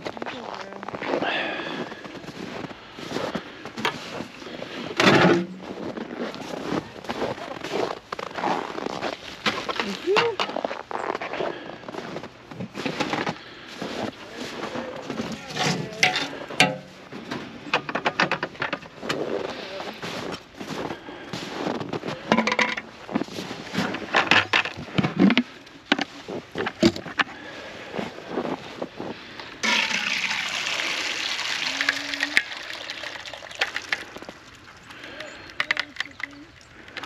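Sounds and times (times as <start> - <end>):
ice knocking against waterer: 15.1 - 17.1, 22.3 - 22.9, 29.6 - 34.4, 35.0 - 37.0
water pouring from bucket: 29.6 - 37.0.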